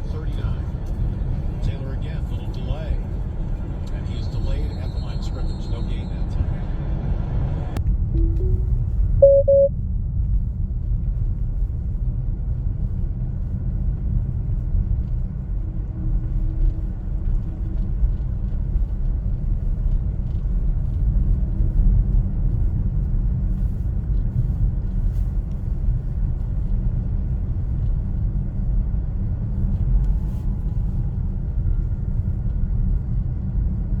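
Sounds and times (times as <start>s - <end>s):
short beep: 8.2s - 9.7s
tyres rumbling on snowy road: 10.7s - 34.0s.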